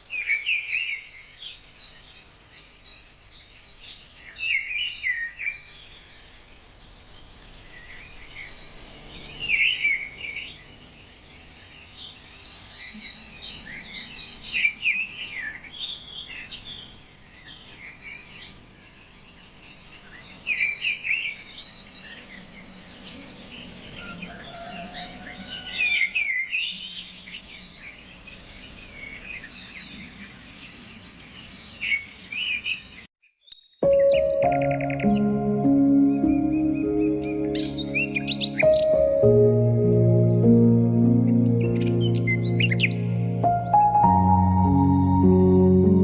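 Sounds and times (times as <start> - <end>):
songbirds chirping: 33.8 - 46.0.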